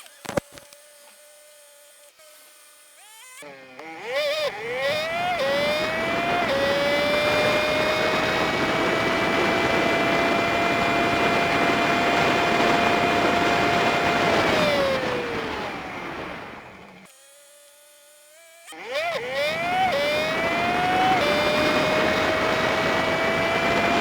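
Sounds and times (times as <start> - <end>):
high-pitched motorbike engine: 0.0 - 24.0
wind noise: 4.8 - 16.9, 19.4 - 24.0.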